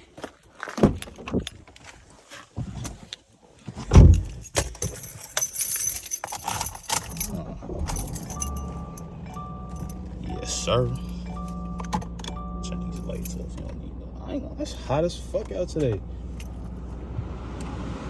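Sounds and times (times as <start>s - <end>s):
keys jangling: 4.0s - 10.1s, 13.0s - 13.7s, 16.3s - 16.7s.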